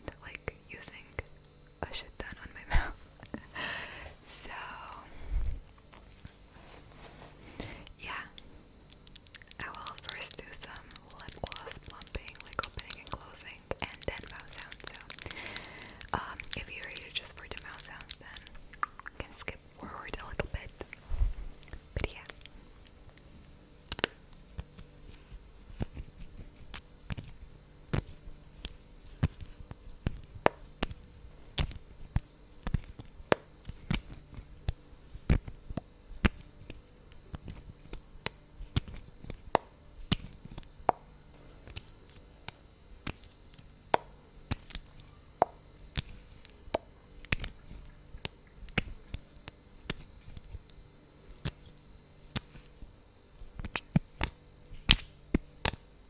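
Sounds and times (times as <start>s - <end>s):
sticky lips smacking: 9.0s - 21.0s.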